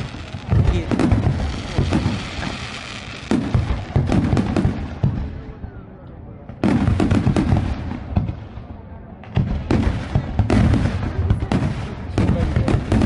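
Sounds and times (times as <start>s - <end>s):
firework shells bursting: 0.0s - 5.2s.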